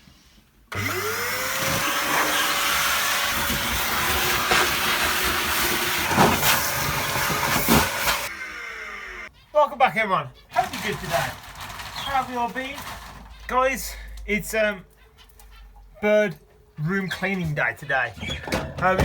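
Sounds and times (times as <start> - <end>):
vacuum cleaner running: 0.7 - 9.3
knocks: 18.2 - 19.0.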